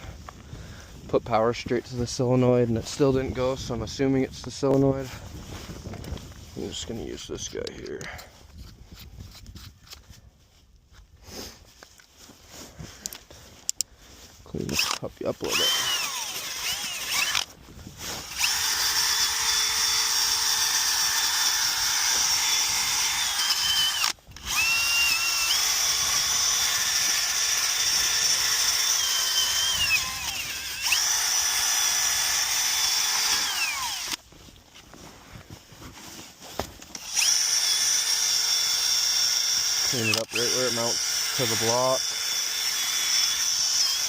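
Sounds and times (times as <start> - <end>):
electric drill whining: 14.7 - 34.2, 36.9 - 44.0.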